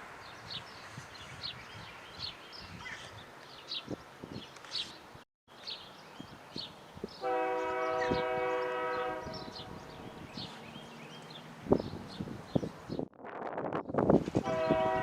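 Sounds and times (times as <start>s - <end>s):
birds chirping: 0.2s - 13.1s
locomotive air horn blast: 7.2s - 10.1s, 14.4s - 15.0s.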